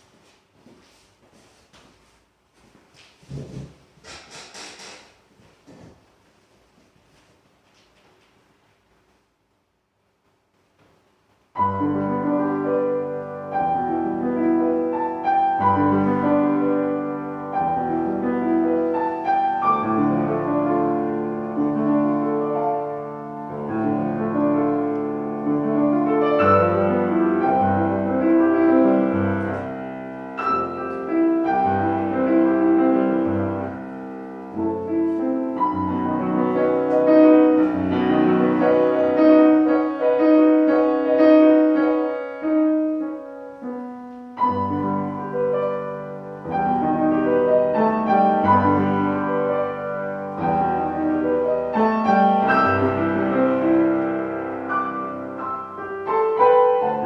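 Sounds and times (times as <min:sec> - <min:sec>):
classical piano playing: 0:11.4 - 0:57.0.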